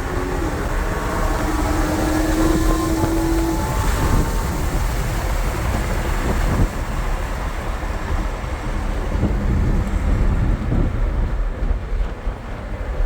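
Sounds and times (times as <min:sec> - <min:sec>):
car engine rumbling: 0:00.0 - 0:12.4
road and wind noise: 0:00.0 - 0:13.0.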